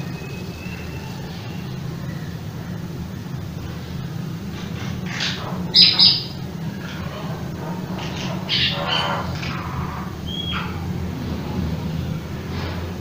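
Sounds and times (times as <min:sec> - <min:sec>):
steady low hum: 0:00.0 - 0:13.0
bird chirps and squawks: 0:04.6 - 0:10.9.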